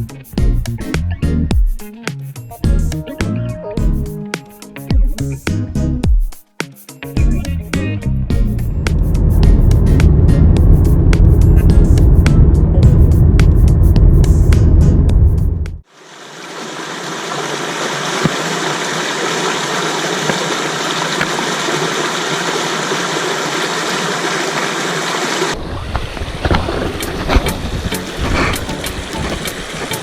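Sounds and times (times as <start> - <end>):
music: 0.0 - 15.8, 27.3 - 30.0
low uneven rumble: 8.2 - 15.8
creek rushing: 15.9 - 30.0.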